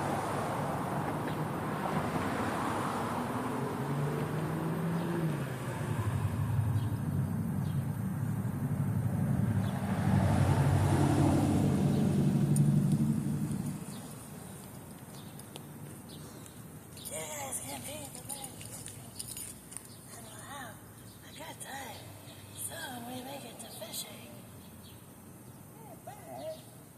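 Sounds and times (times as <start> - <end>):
car engine humming: 0.0 - 20.0.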